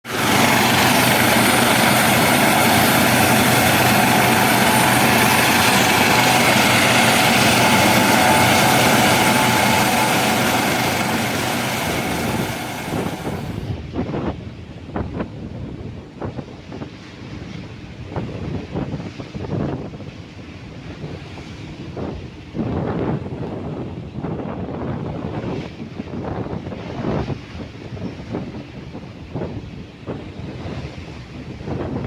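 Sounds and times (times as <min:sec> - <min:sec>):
helicopter running: 0:00.0 - 0:13.8
wind gusts on microphone: 0:00.0 - 0:32.0.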